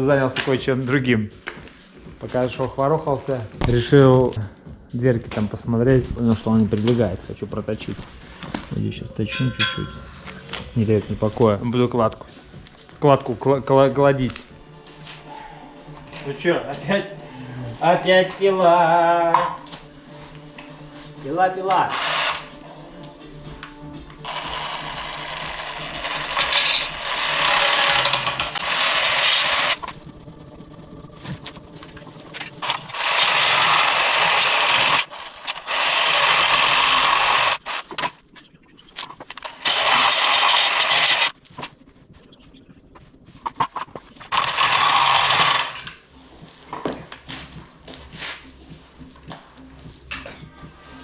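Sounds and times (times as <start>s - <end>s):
power tool cutting: 21.8s - 22.5s, 24.2s - 29.8s, 32.6s - 37.9s, 39.5s - 41.4s, 44.3s - 45.9s.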